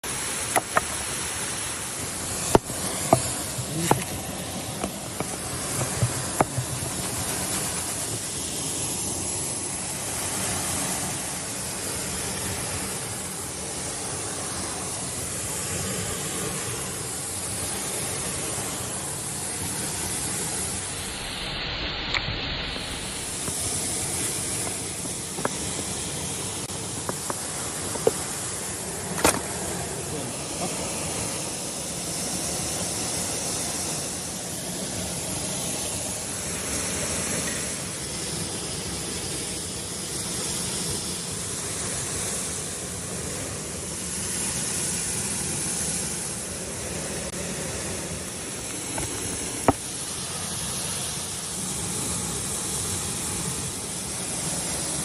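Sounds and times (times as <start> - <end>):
waterfall rushing: 0.0 - 55.0
sharp clicks and knocks: 0.5 - 1.0.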